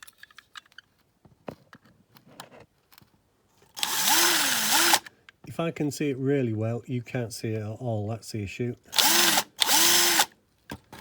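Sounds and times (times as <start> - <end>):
handling clicks and scrapes: 0.0 - 3.9
power drill whirring: 3.8 - 5.1, 8.9 - 10.3.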